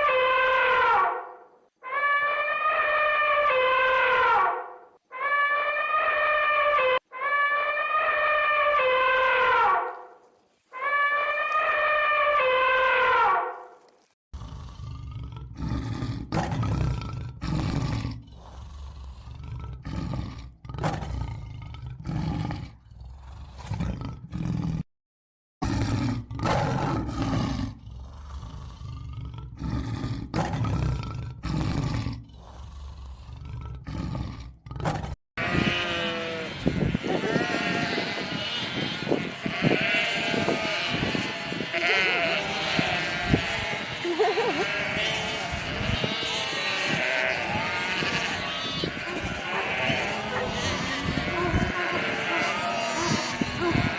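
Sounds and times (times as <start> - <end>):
deep animal roars and grunts: 14.4 - 24.8, 25.6 - 53.9
elephant trumpeting: 35.4 - 53.9.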